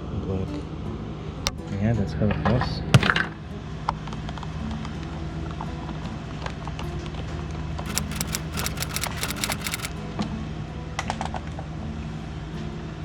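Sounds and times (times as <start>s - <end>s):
small sharp clicks: 7.8s - 9.9s.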